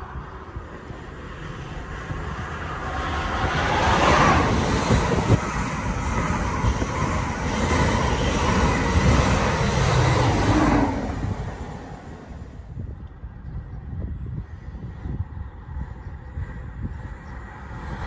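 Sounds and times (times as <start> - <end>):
train wheels rushing on rail: 0.0 - 12.7.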